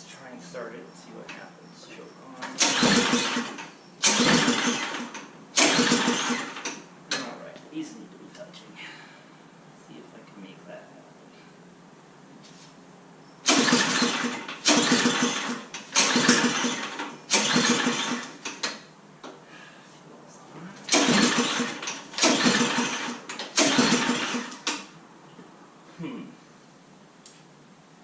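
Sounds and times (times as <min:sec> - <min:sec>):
snowblower engine cranking: 0:02.5 - 0:07.3, 0:13.4 - 0:18.8, 0:20.9 - 0:24.9.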